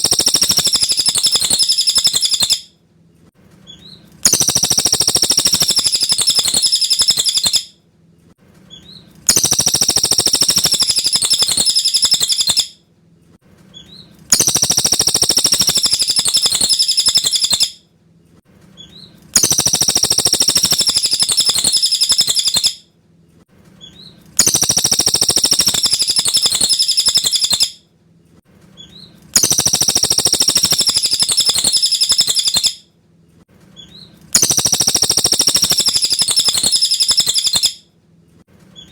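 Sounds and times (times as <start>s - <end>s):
songbird singing high phrase: 0.0s - 2.6s, 4.3s - 7.6s, 9.3s - 12.7s, 14.4s - 17.7s, 19.4s - 22.8s, 24.4s - 27.7s, 29.4s - 32.8s, 34.4s - 37.8s.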